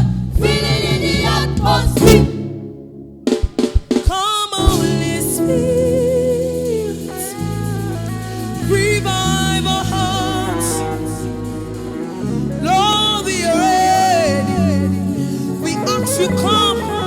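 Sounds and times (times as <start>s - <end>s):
music with singing: 0.0s - 2.5s, 4.1s - 17.0s
drum hits: 1.1s - 5.4s.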